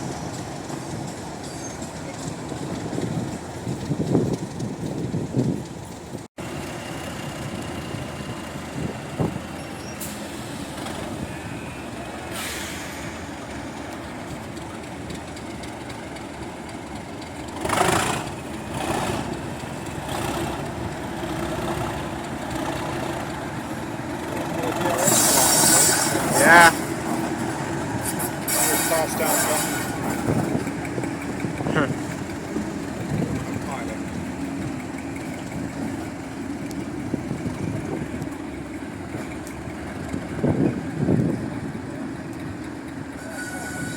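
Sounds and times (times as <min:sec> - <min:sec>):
diesel locomotive engine running: 0:00.0 - 0:43.9
air hissing: 0:12.2 - 0:13.4, 0:25.0 - 0:27.0, 0:27.6 - 0:30.6.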